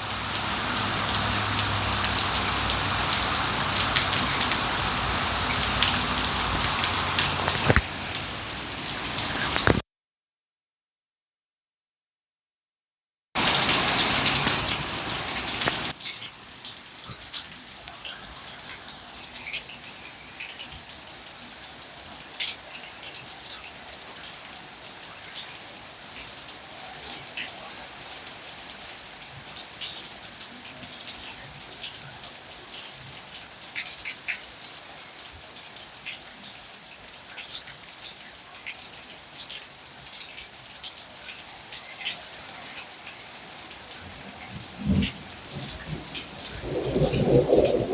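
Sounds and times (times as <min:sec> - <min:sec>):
drips and splashes: 0:00.0 - 0:09.8, 0:13.4 - 0:47.9
steady rainfall: 0:00.0 - 0:09.8, 0:13.4 - 0:47.9.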